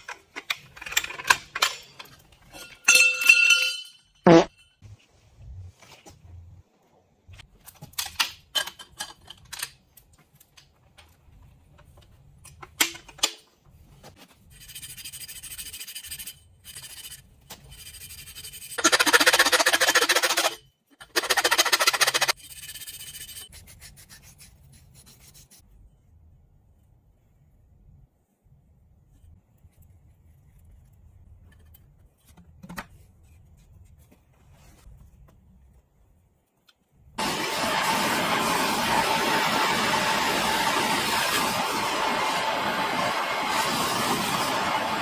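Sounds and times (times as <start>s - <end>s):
metal parts clinking: 0.4s - 4.1s.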